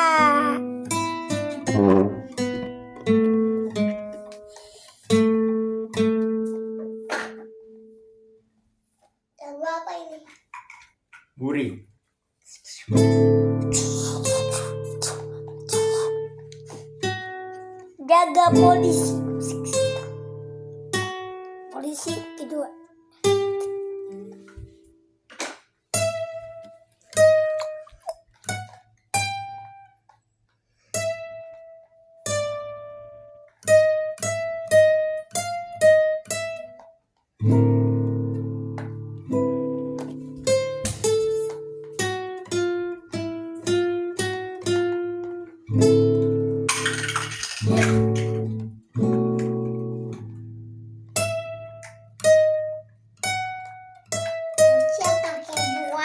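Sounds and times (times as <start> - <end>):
guitar plucked notes: 0.0 - 4.4, 12.9 - 22.4, 37.4 - 56.0.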